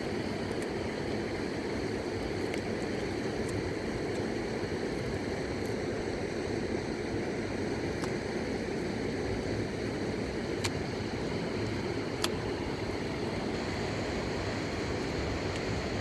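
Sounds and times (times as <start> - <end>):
river rushing: 10.6 - 16.0.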